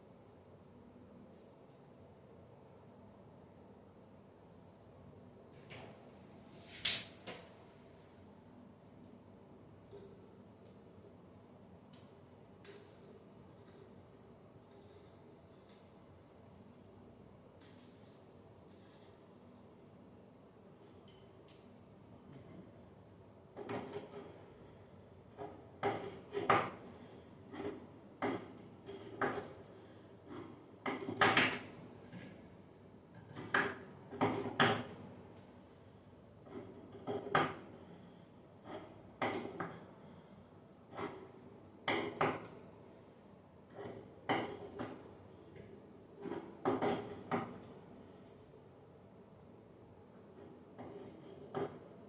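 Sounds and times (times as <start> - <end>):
hard objects knocking and clanking: 23.6 - 24.4, 25.3 - 26.9, 27.5 - 29.7, 30.3 - 32.4, 33.2 - 35.0, 36.4 - 37.7, 38.6 - 39.9, 40.9 - 42.6, 43.7 - 45.2, 46.2 - 47.8, 50.4 - 52.0.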